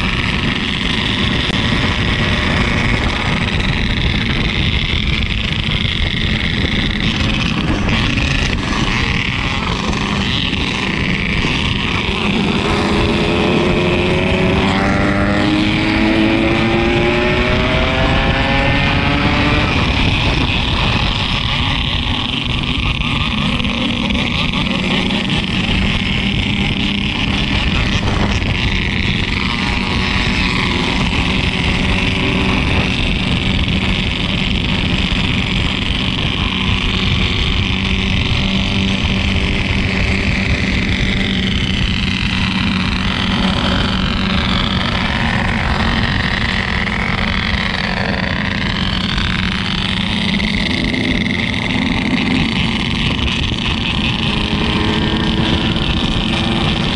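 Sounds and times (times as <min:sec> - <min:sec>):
motorcycle engine running: 0:00.0 - 0:56.9
wind and road rush: 0:00.0 - 0:56.9.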